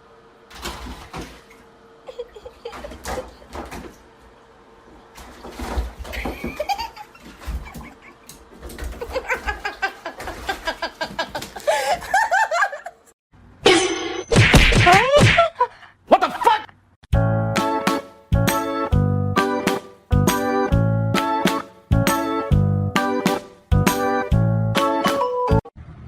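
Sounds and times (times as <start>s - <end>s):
people laughing hard: 9.0s - 13.1s.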